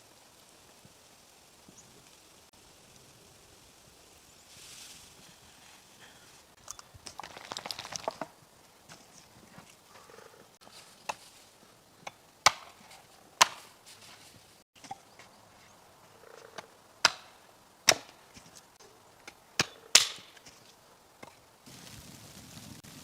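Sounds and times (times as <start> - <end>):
wood being chopped: 12.0 - 13.8, 17.0 - 18.5, 19.2 - 20.6.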